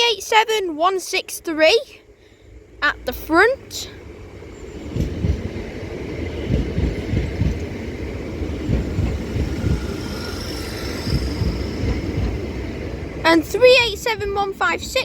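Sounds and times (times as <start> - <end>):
train wheels rumbling on rail: 2.6 - 15.0
faint high-pitched squeal: 8.6 - 13.0.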